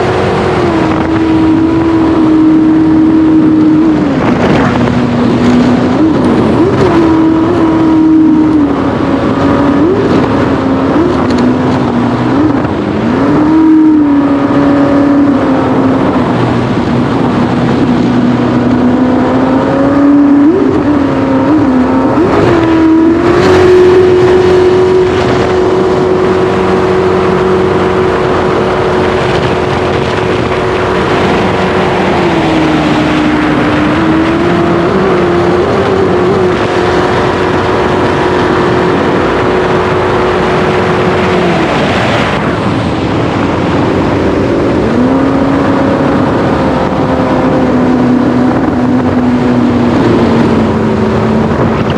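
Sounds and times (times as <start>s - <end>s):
jet boat engine running: 0.0s - 51.9s.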